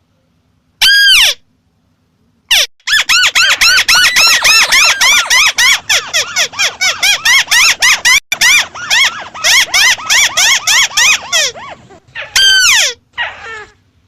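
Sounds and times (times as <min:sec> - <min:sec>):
bird fast chattering calls: 0:02.9 - 0:07.9.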